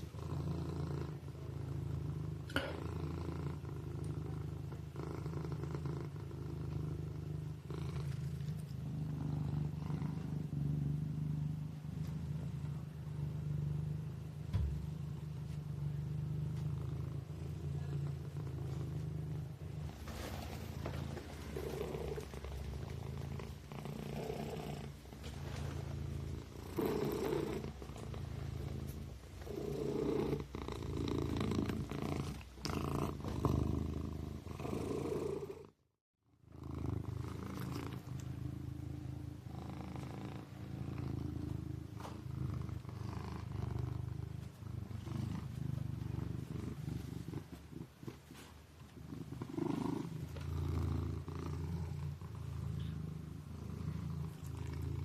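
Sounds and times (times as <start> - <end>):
kitten purring: 0.0 - 35.8, 36.4 - 55.0.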